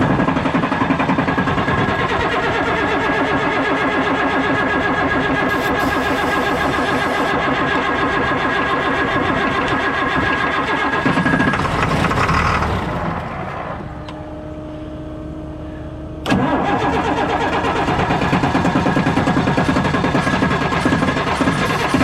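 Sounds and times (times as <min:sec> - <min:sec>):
truck engine cranking on starter: 0:00.0 - 0:14.0, 0:16.2 - 0:22.0
steady hum: 0:00.8 - 0:07.5.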